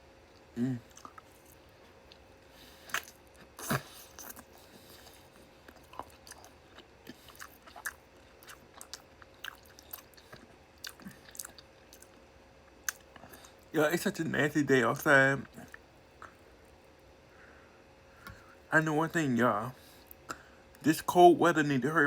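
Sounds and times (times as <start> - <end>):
person chewing meat: 0.2 - 13.7.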